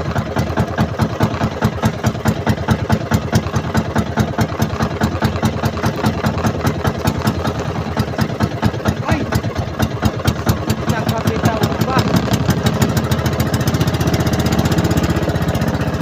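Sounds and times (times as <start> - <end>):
small boat engine puttering: 0.0 - 16.0.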